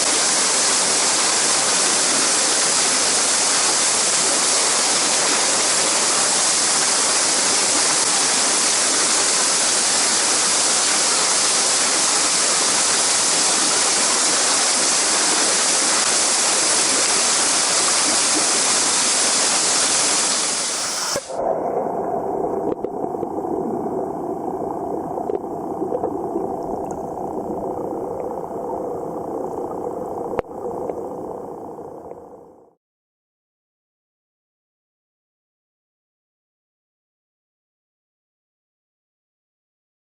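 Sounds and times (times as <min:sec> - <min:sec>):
stream water rushing: 0:00.0 - 0:21.5
muffled underwater sound: 0:20.7 - 0:32.7
faint underwater clicks: 0:22.6 - 0:23.4, 0:25.1 - 0:31.3.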